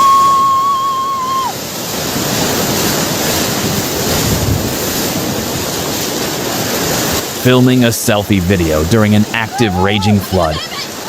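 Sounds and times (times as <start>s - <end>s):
turbulent water rushing: 0.0s - 11.0s
wind buffeting microphone: 1.9s - 6.0s.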